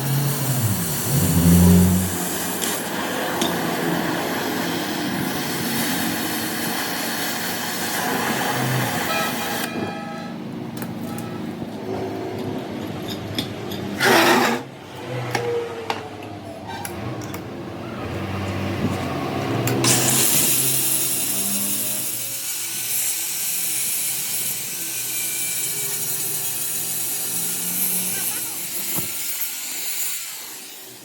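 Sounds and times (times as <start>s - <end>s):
power tool hissing: 0.0s - 9.6s, 19.8s - 31.0s.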